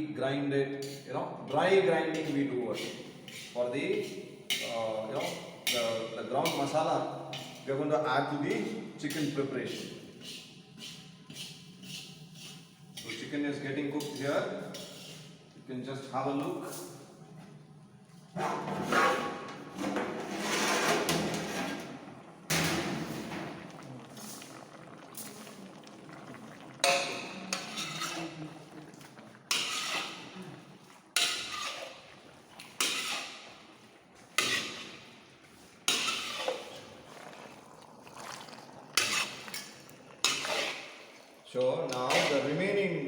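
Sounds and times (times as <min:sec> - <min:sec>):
metal ladle scraping pot: 0:00.8 - 0:07.8, 0:08.5 - 0:15.5, 0:18.2 - 0:26.0, 0:26.8 - 0:42.8.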